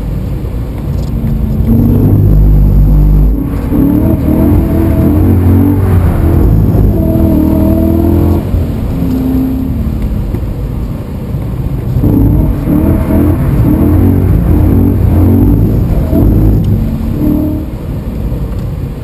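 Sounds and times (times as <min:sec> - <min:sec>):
car engine revving hard: 0:01.1 - 0:10.2, 0:11.9 - 0:18.1.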